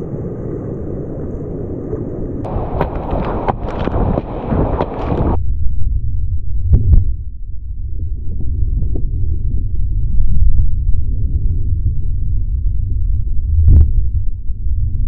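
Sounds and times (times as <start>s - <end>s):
wind buffeting microphone: 0.0s - 5.4s
crackle and sharp clicks: 1.9s - 5.4s.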